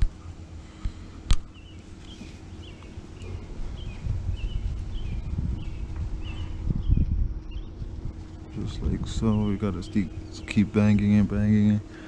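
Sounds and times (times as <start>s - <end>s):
low wind rumble: 0.0s - 12.0s
small bird chirping: 1.4s - 7.9s
microphone handling noise: 3.4s - 10.3s.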